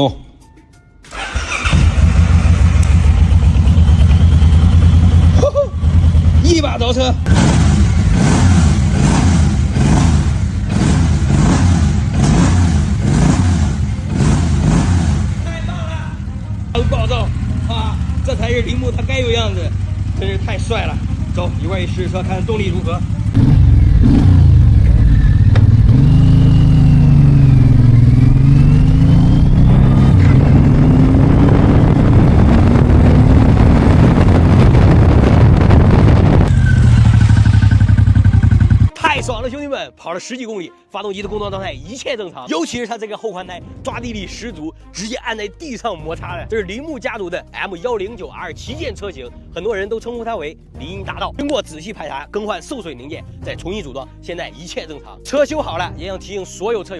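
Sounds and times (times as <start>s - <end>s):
motorcycle engine revving: 1.1s - 39.0s.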